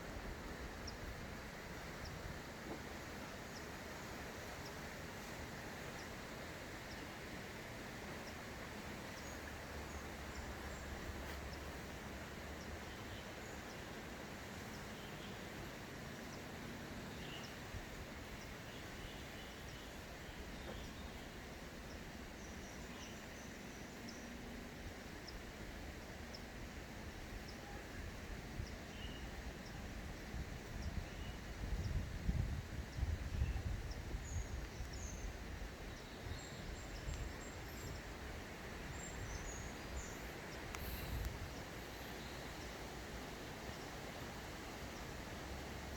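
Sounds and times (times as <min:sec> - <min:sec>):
steady background hiss: 0:00.0 - 0:45.9
faint bird chirps: 0:28.6 - 0:32.0.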